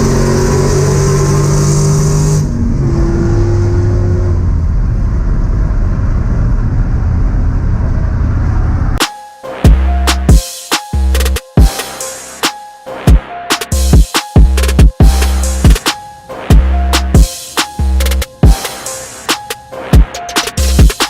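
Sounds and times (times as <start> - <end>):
race vehicle engines: 0.0 - 9.0.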